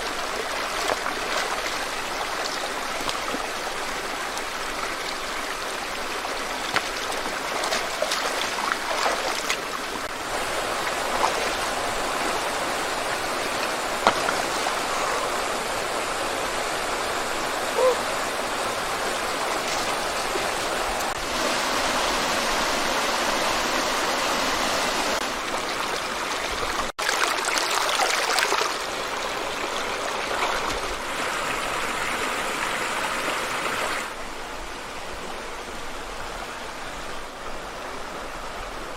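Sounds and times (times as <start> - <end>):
stream water flowing: 0.0 - 38.9
short splashes or knocks: 14.0 - 14.6.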